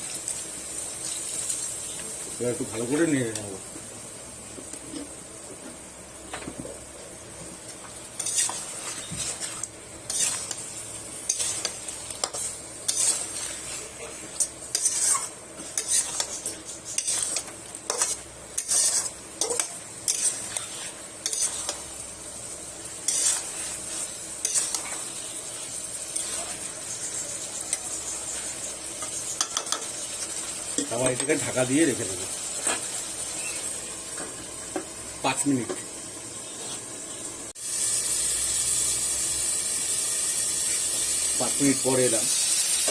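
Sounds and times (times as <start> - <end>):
food sizzling: 0.0 - 42.9
spatula scraping a pan: 8.2 - 22.1, 22.8 - 31.5, 32.5 - 33.7.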